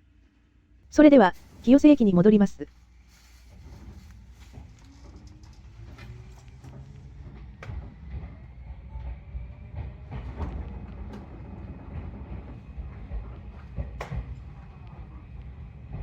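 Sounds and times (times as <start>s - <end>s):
train rumble: 3.0s - 16.0s
wheels clacking over rail joints: 3.7s - 16.0s.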